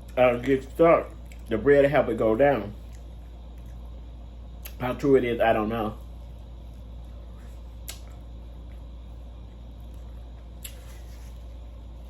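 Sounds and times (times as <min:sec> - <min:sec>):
steady low hum: 0:00.0 - 0:12.0
mouth clicks while eating: 0:07.8 - 0:08.8.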